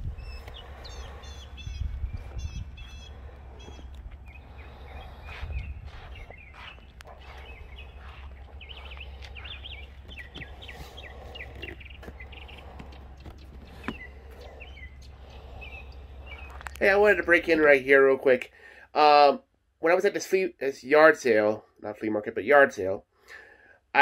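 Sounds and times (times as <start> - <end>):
low steady rumble: 0.0 - 17.9
songbirds chirping and singing: 0.0 - 19.2.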